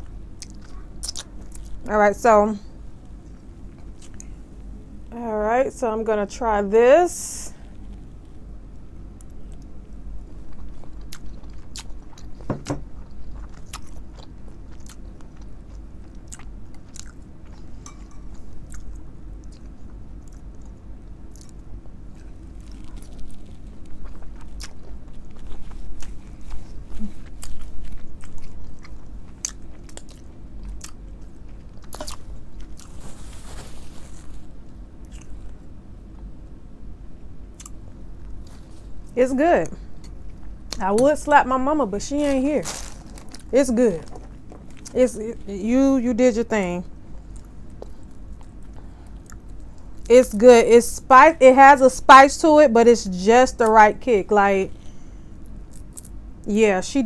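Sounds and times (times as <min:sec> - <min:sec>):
person chewing: 0:00.4 - 0:01.9, 0:03.2 - 0:04.4, 0:10.3 - 0:35.6, 0:37.5 - 0:39.1, 0:42.6 - 0:45.0, 0:47.1 - 0:50.0.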